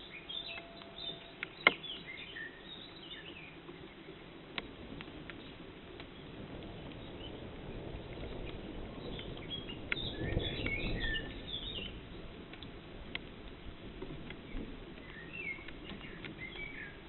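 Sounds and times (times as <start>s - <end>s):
low outdoor rumble: 0.0s - 17.0s
songbird warbling: 15.0s - 17.0s.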